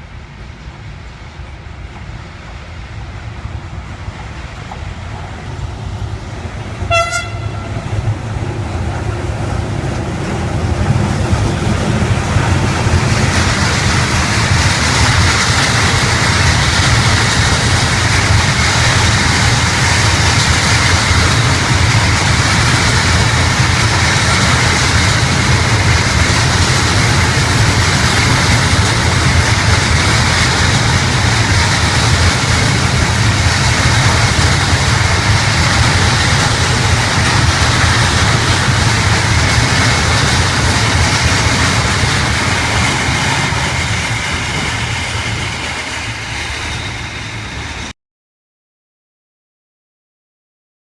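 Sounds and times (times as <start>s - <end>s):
train wheels rushing on rails: 0.0s - 48.0s
train horn toot: 6.8s - 7.9s.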